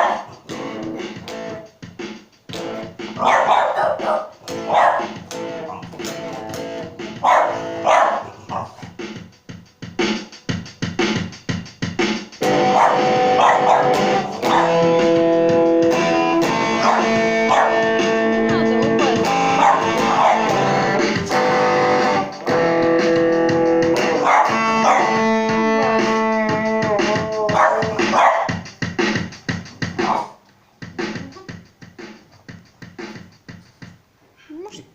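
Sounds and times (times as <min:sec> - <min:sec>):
guitar playing: 0:00.0 - 0:01.9, 0:02.5 - 0:08.8, 0:10.0 - 0:30.0
dog barking short calls: 0:03.2 - 0:05.1, 0:07.3 - 0:08.8.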